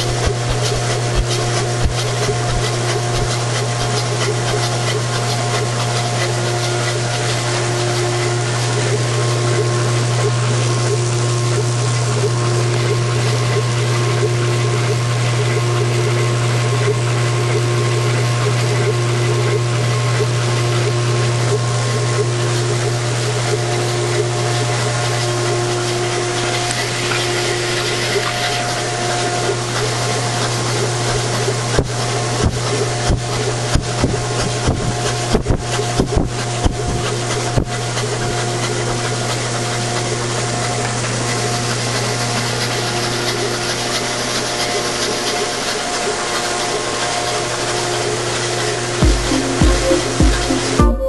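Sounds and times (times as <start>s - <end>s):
engine mechanical hum and whir: 0.0s - 51.0s
higher tone: 49.0s - 51.0s.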